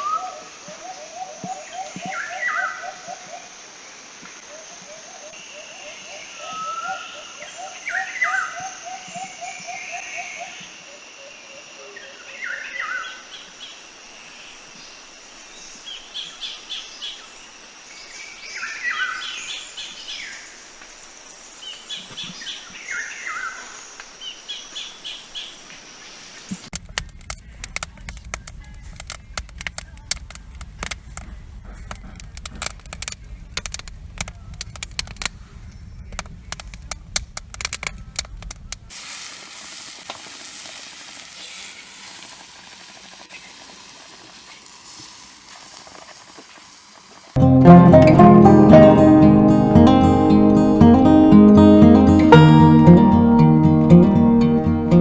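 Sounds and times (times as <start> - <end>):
crackling and sizzling: 26.4 - 55.0
low rumble: 26.8 - 38.9.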